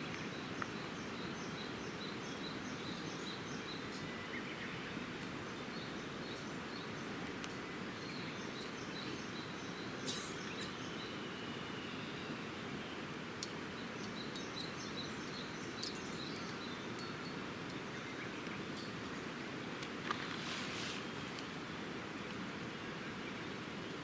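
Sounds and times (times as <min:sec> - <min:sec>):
bird chirping: 0:00.0 - 0:12.4, 0:13.8 - 0:19.3.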